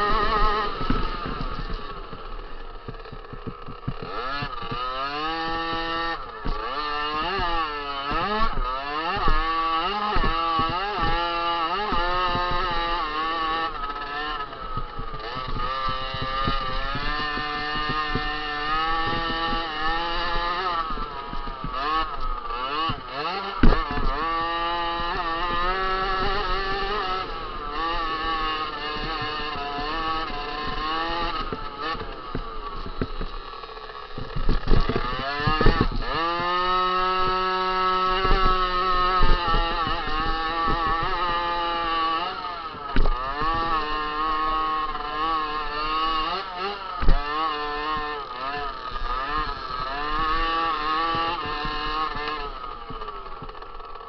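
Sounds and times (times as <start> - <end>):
motocross bike engines racing: 0.0 - 54.0.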